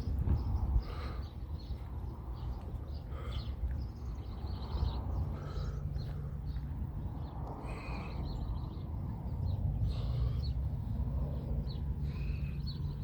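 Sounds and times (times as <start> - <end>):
birds chirping and calling: 0.0 - 13.0
steady low rumble: 0.0 - 13.0.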